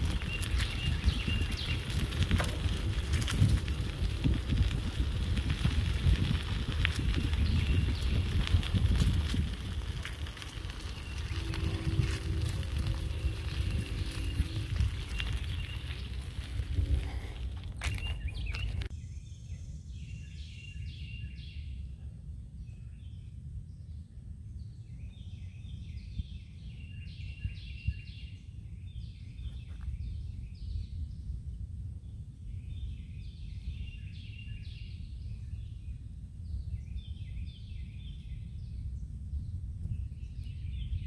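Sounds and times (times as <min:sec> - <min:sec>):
low rumble: 0:00.0 - 0:20.6
birds chirping: 0:00.0 - 0:21.7.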